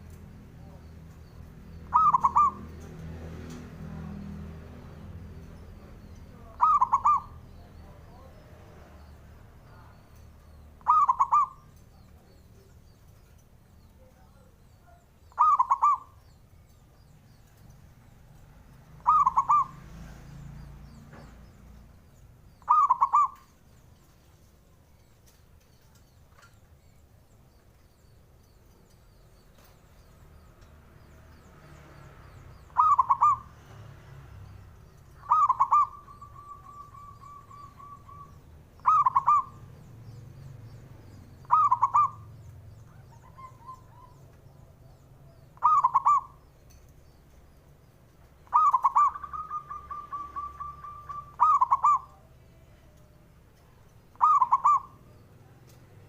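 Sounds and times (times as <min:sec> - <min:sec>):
rapid bird trill: 0:00.8 - 0:03.1, 0:04.7 - 0:08.4, 0:09.0 - 0:31.5, 0:32.2 - 0:55.6
dove cooing: 0:01.8 - 0:04.1, 0:05.8 - 0:08.4, 0:10.8 - 0:13.3, 0:14.9 - 0:16.2, 0:19.0 - 0:19.9, 0:22.6 - 0:23.6, 0:32.6 - 0:33.5, 0:35.0 - 0:40.0, 0:41.4 - 0:46.4, 0:48.4 - 0:53.2, 0:54.1 - 0:55.2.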